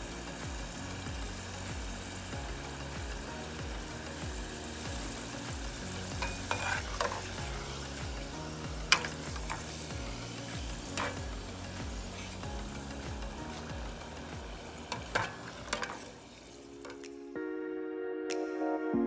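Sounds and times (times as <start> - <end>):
food sizzling in oil: 0.0 - 17.4
background music with beat: 0.0 - 19.0
utensil clinking against pan: 6.1 - 7.4.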